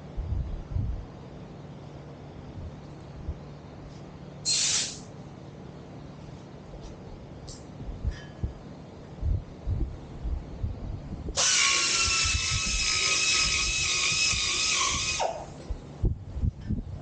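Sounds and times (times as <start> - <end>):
power tool whining: 11.4 - 15.6.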